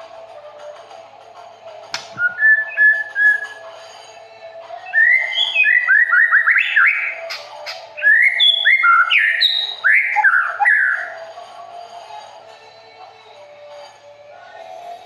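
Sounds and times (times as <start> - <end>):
songbird singing: 2.0 - 3.6, 4.8 - 11.2.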